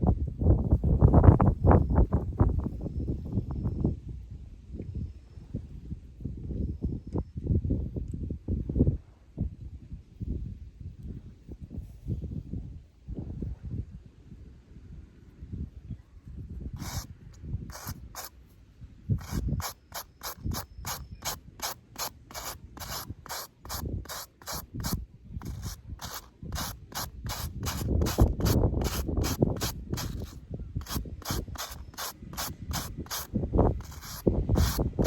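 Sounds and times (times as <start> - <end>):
wind rumbling on microphone: 0.0 - 35.0.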